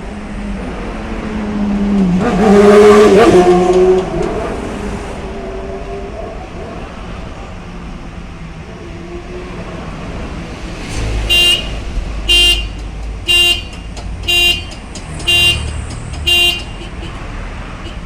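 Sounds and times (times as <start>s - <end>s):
traffic noise: 0.0s - 18.0s
short vehicle horn beeps: 11.3s - 17.2s.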